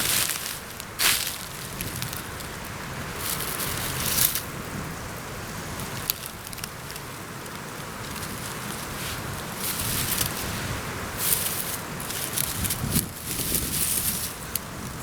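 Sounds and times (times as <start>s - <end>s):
branch snapping: 0.0s - 4.5s
low wind rumble: 0.0s - 15.0s
pine branches crackling and rustling: 0.0s - 15.0s.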